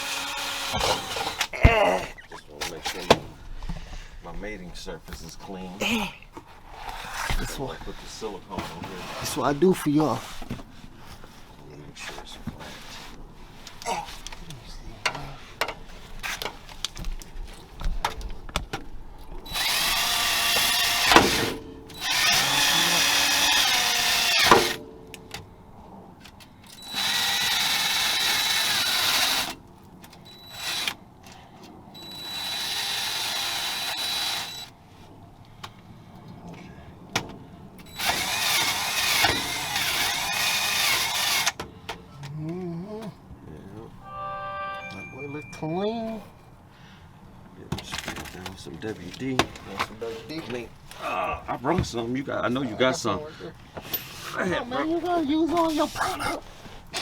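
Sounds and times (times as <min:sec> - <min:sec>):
electric drill running: 0:00.0 - 0:01.5, 0:19.5 - 0:24.8, 0:26.8 - 0:29.6, 0:30.3 - 0:31.0, 0:32.0 - 0:34.7, 0:37.9 - 0:41.6.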